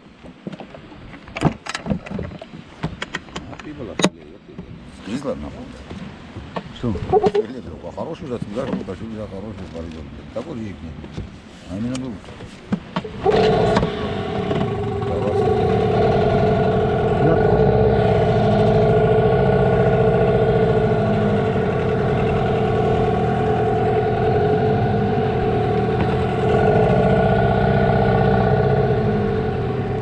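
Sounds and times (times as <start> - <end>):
boat motor running: 10.1 - 30.0.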